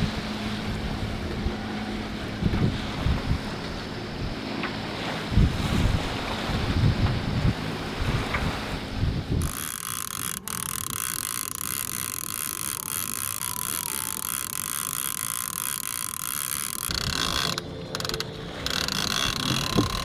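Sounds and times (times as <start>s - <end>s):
fishing reel ratcheting: 9.4s - 20.0s.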